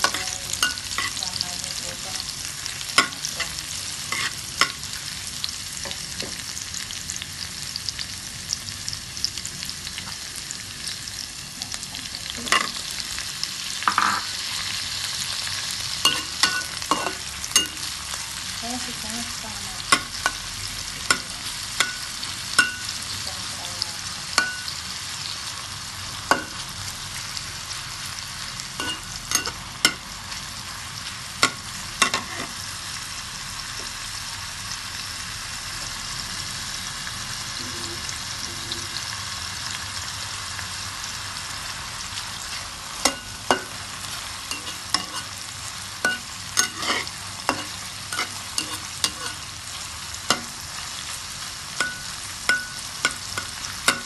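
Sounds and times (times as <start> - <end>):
metal spatula clinking and scraping: 0.0 - 1.2, 3.0 - 4.8, 16.0 - 17.9, 21.1 - 22.9, 28.8 - 30.0, 44.5 - 45.4, 46.0 - 49.4, 51.8 - 54.0
sausage sizzling in oil: 0.0 - 54.0.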